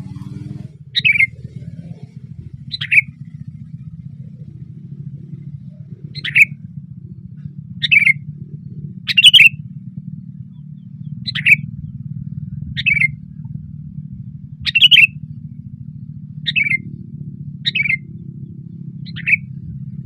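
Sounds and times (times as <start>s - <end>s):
steady low hum: 0.0s - 20.0s
bird giving short loud calls: 6.2s - 6.5s, 9.1s - 9.6s, 11.3s - 11.6s, 14.6s - 15.1s.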